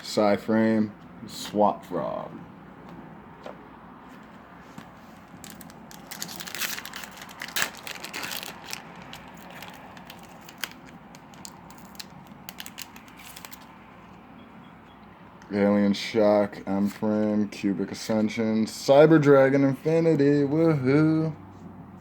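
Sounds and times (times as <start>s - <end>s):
foil wrapper tearing and crinkling: 5.3s - 13.8s.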